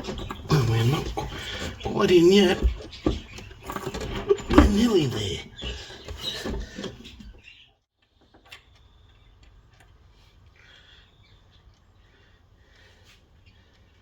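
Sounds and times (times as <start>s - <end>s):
scraping and shuffling: 0.0s - 7.4s.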